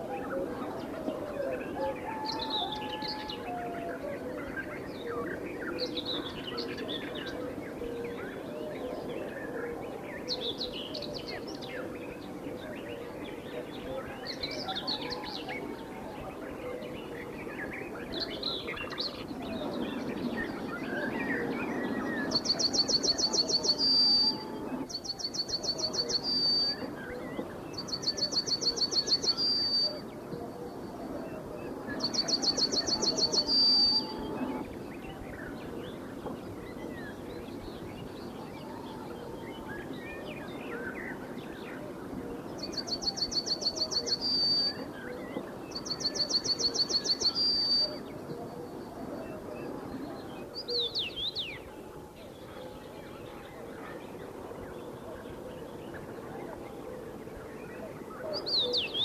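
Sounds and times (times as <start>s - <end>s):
faint chirps of other birds: 0.0s - 59.0s
bird singing trilled song: 21.8s - 30.0s, 32.0s - 34.4s, 42.6s - 45.0s, 45.7s - 48.0s.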